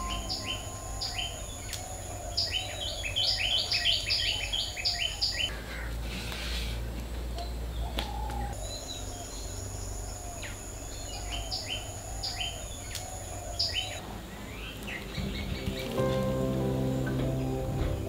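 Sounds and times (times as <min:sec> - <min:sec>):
soft music: 0:00.0 - 0:02.6, 0:14.0 - 0:18.0
steady high whine: 0:00.0 - 0:03.5
birds chirping: 0:00.0 - 0:18.0.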